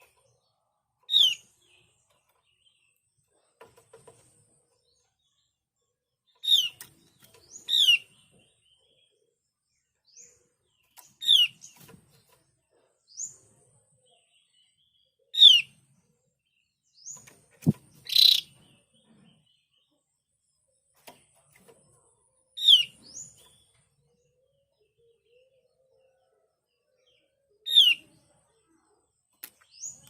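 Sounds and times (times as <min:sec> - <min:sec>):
bird calling sharp notes: 0:18.0 - 0:18.5
click: 0:29.3 - 0:29.7.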